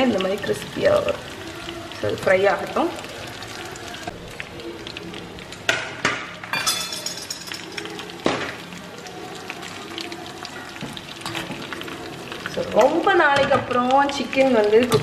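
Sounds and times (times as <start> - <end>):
chicken deep-frying in oil: 0.0 - 15.0
metal spatula clinking on pan: 6.5 - 7.7.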